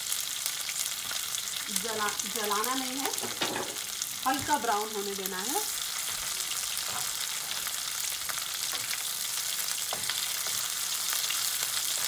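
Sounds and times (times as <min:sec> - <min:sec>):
spices sizzling in hot oil: 0:00.0 - 0:12.0
spatula stirring in a pan: 0:05.7 - 0:12.0.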